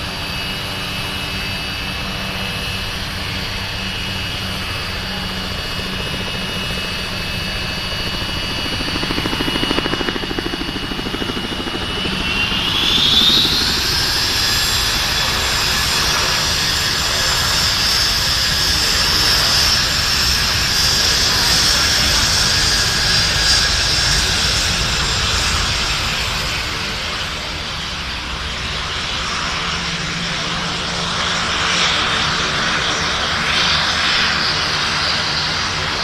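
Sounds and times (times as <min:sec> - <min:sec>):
aircraft turbine engine whining: 0:00.0 - 0:36.0.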